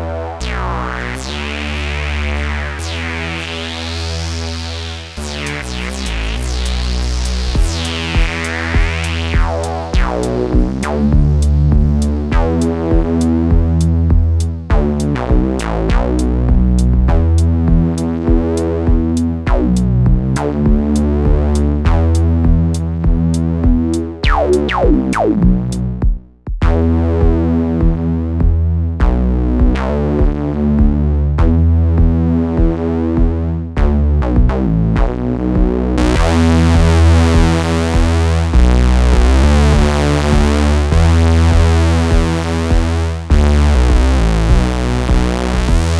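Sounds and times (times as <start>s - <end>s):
synth sequence: 0.0s - 19.7s, 20.4s - 26.0s, 35.7s - 45.9s
drum machine ticks: 5.2s - 45.9s.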